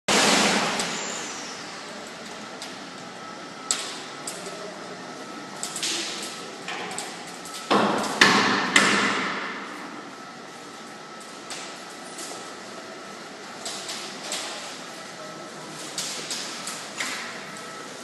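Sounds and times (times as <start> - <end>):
sharp knocks and clanks: 7.6 - 9.7.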